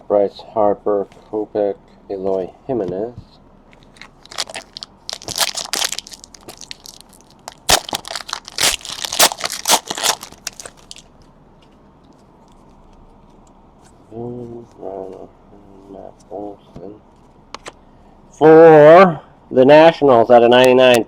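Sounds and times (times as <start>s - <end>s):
wrapper tearing and crackling: 4.0s - 11.1s.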